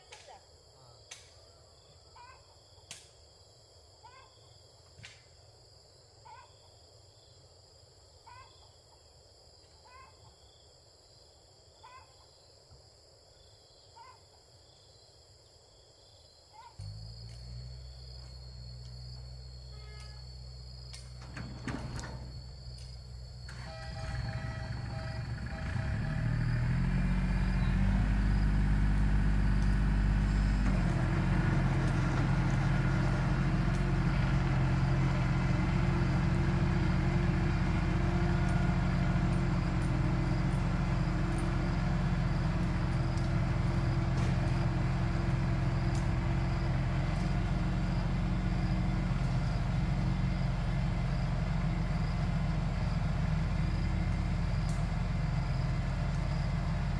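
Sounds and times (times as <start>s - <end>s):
tractor diesel engine running hard: 16.8s - 56.9s.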